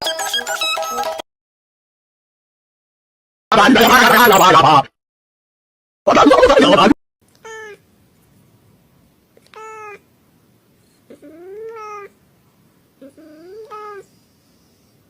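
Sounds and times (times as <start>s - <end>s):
cat meowing: 7.4s - 7.8s, 9.5s - 10.0s, 11.2s - 12.1s.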